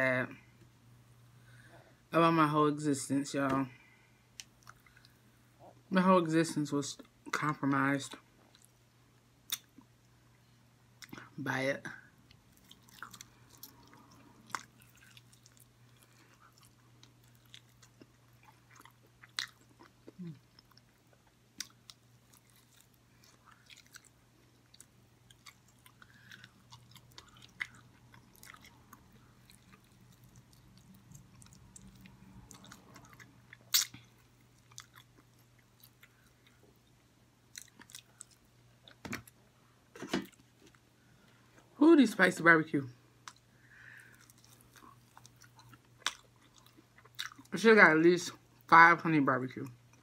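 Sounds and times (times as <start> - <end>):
low steady hum: 0.0 - 50.0
faint biting and chewing: 12.3 - 40.8, 43.2 - 47.5.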